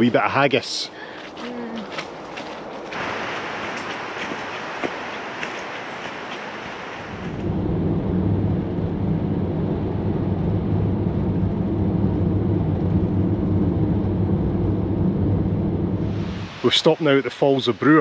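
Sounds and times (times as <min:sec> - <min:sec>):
road noise: 0:00.0 - 0:18.0
van engine drone: 0:02.9 - 0:16.8
soft hiss: 0:16.1 - 0:18.0.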